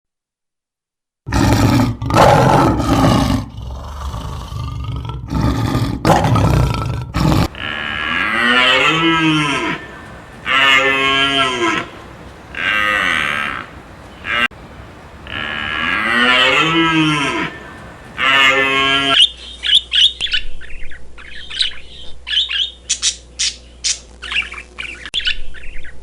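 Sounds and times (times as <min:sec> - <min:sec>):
cattle mooing: 0:07.2 - 0:19.2.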